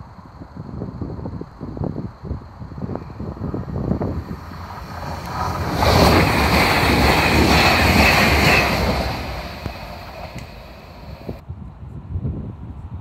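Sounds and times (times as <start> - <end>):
wind buffeting microphone: 0.0 - 13.0
train passing at speed: 3.0 - 11.4.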